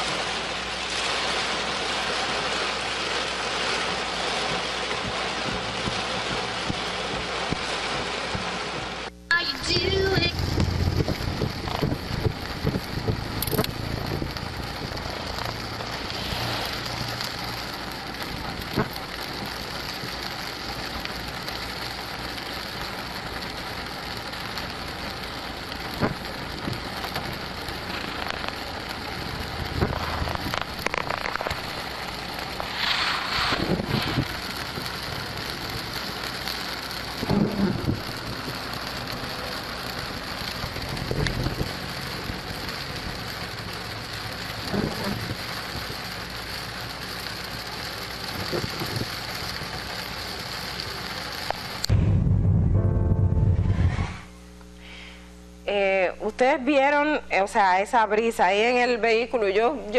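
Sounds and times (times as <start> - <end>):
heavy rain on a car: 0.0 - 51.9
strong wind: 10.2 - 14.9, 32.5 - 34.9, 51.9 - 54.4.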